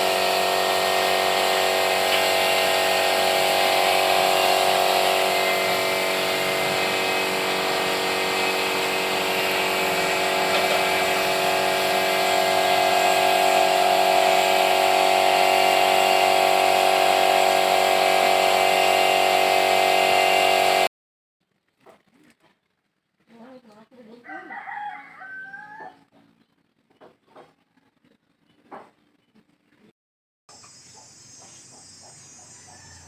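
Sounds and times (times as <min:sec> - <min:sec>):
electric power tool motor: 0:00.0 - 0:20.9.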